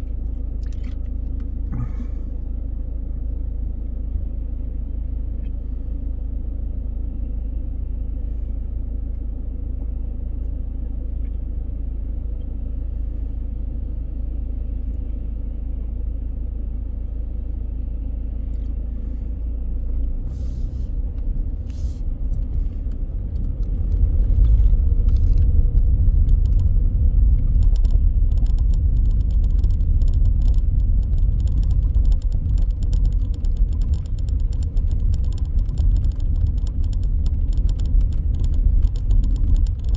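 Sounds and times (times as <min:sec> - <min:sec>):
car road and engine rumble: 0:00.0 - 0:39.9
quick clicks and rattles: 0:22.4 - 0:39.9.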